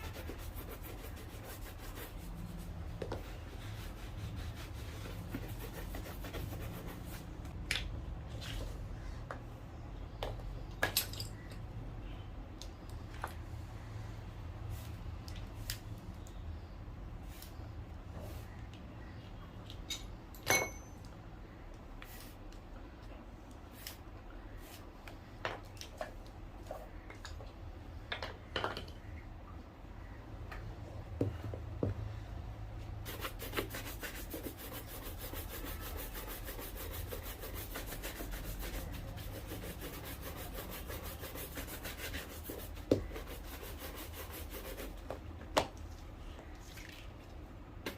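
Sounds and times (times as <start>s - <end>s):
rubbing strokes on a shoe: 0.0s - 7.4s, 33.0s - 45.2s
ringing clink: 19.9s - 21.0s
hard objects tapping and knocking: 27.1s - 29.0s.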